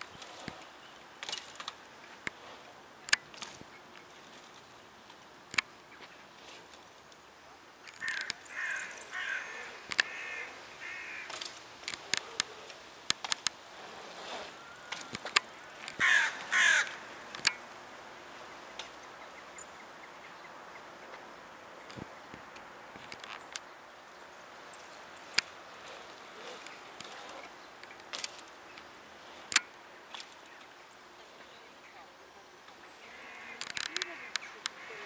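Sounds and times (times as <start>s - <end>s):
bird harsh calls: 7.9s - 11.3s, 16.0s - 17.1s.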